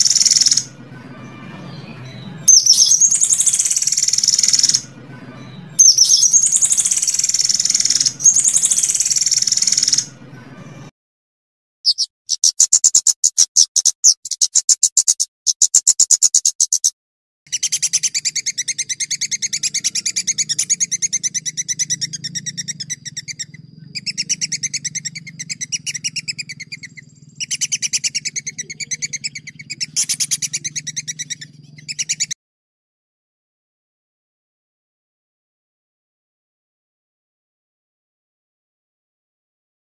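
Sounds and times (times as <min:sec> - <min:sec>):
songbird trilling: 0:00.0 - 0:10.2, 0:11.9 - 0:16.9, 0:17.5 - 0:32.4
steady low hum: 0:18.1 - 0:32.0.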